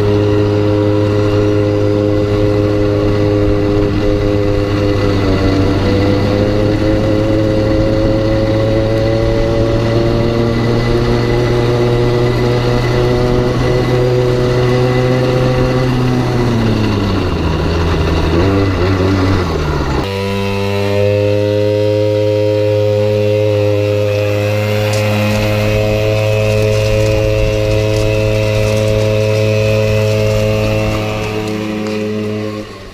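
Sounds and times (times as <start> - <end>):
two-stroke engine running: 0.0 - 32.9.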